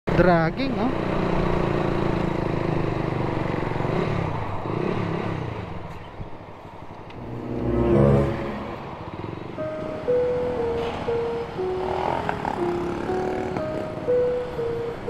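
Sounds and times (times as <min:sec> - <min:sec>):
motorcycle engine running: 0:00.1 - 0:05.3.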